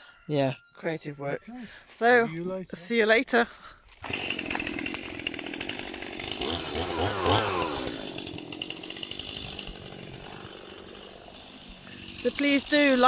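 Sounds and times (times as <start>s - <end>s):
chainsaw running and revving: 4.0s - 13.0s.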